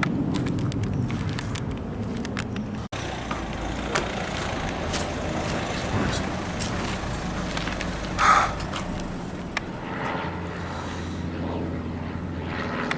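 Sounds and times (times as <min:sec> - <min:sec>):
jet aircraft roar: 0:00.0 - 0:12.9.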